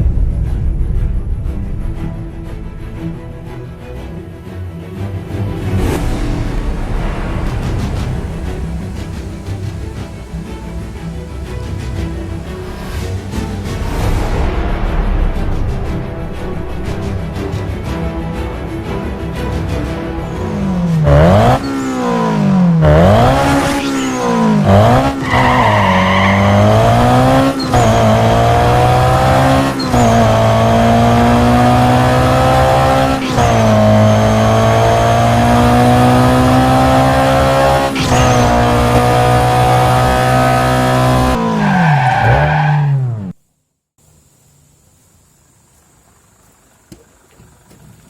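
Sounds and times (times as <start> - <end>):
car engine revving: 20.2 - 43.4.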